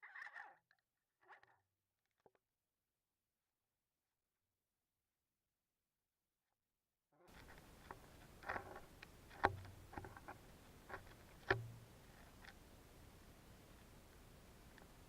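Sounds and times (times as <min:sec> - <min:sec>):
underwater clicks and knocks: 0:08.4 - 0:12.6.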